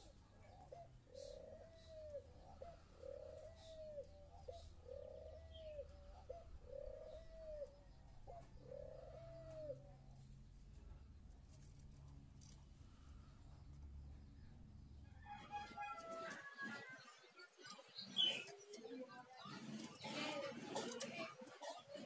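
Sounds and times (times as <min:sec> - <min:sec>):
dove cooing: 0:00.0 - 0:10.2, 0:15.3 - 0:22.0.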